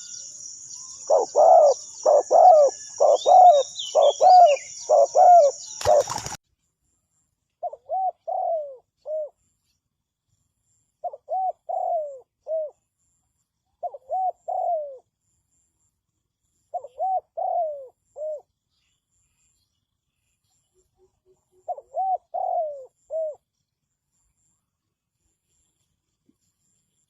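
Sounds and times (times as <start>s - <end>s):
dove cooing: 1.0s - 6.4s, 7.6s - 9.4s, 11.0s - 12.8s, 13.8s - 15.0s, 16.7s - 18.5s, 21.3s - 23.4s.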